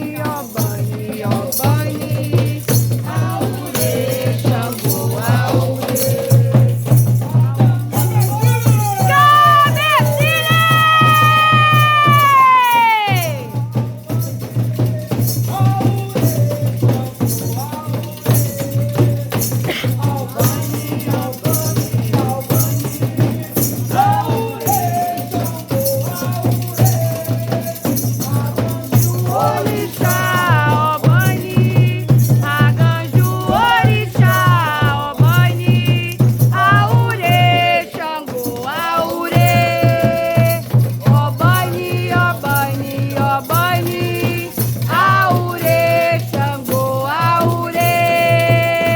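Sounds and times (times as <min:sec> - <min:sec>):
rattles shaking fast: 0:00.0 - 0:14.3, 0:17.0 - 0:48.9
voices singing: 0:00.0 - 0:48.9.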